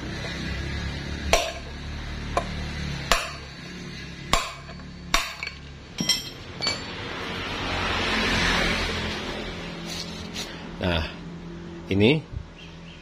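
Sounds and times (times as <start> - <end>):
hammer striking metal: 1.3 - 1.7, 3.1 - 3.5, 4.3 - 7.0.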